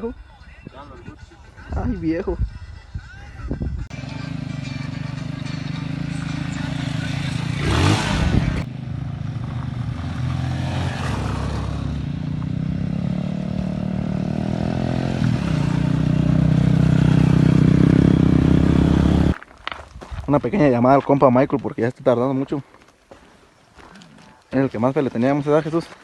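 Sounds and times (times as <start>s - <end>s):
motorcycle engine revving: 3.9s - 19.4s.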